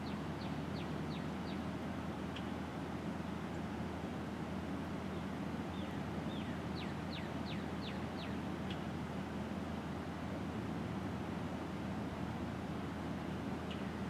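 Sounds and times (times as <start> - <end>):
songbird singing: 0.0 - 1.7, 2.3 - 2.6, 5.1 - 8.9, 13.2 - 14.0.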